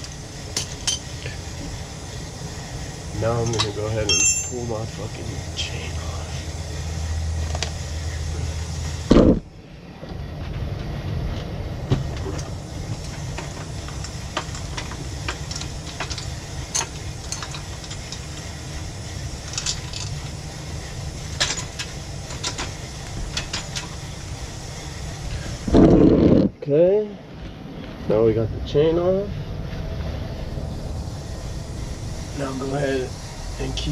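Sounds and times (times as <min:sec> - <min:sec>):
steady low rumble: 0:00.0 - 0:33.9
metallic chain clicks and clinks: 0:03.4 - 0:04.7.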